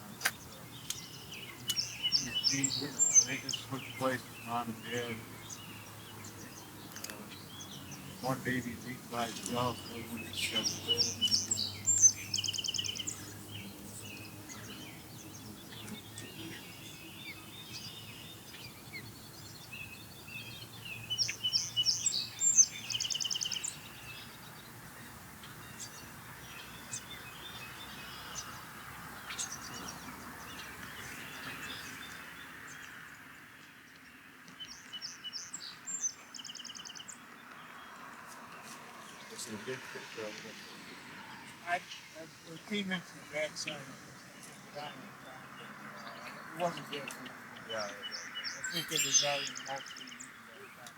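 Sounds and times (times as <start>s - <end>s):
outdoor background noise: 0.0s - 50.9s
osprey whistled chirps: 48.0s - 50.2s.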